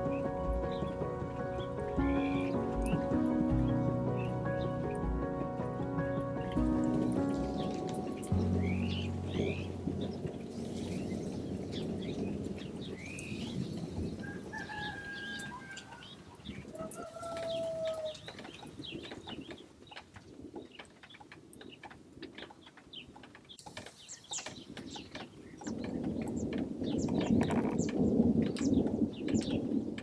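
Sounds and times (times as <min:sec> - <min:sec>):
low rumble: 0:00.0 - 0:14.5.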